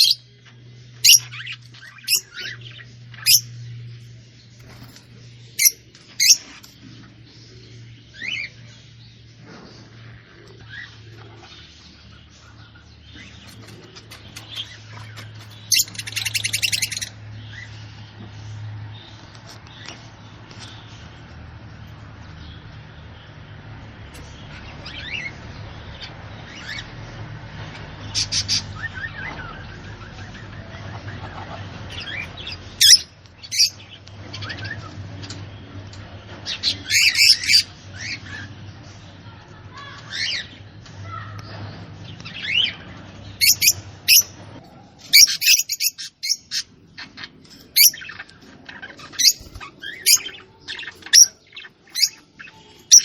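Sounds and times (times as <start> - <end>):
bird chirping and trilling: 0.0 - 4.0, 5.4 - 9.2, 10.3 - 18.0, 28.0 - 34.9, 36.4 - 38.8, 42.2 - 44.4, 45.0 - 53.0.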